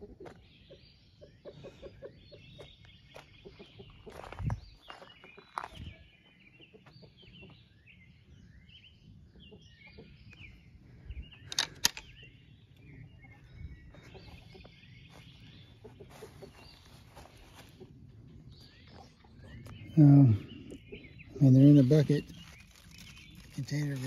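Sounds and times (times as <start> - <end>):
birds chirping: 0.0 - 24.0
sharp clicks: 11.4 - 12.1.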